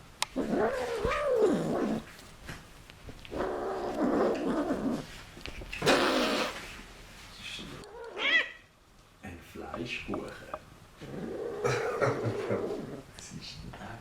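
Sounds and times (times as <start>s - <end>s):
cat hissing: 5.8s - 6.7s
cat meowing: 7.8s - 8.6s.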